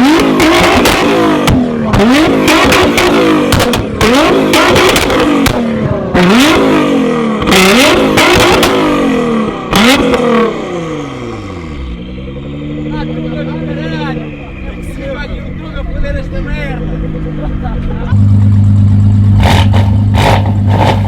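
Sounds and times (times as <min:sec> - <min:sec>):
car engine revving: 0:00.0 - 0:21.0
exhaust pops and bangs: 0:00.2 - 0:06.2, 0:18.2 - 0:21.0.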